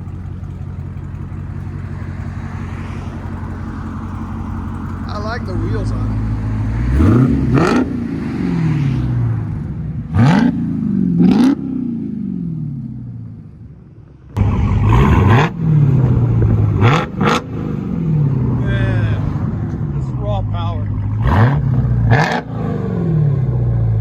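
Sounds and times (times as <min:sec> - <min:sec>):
car engine revving from idle: 0:00.0 - 0:12.9, 0:14.4 - 0:24.0.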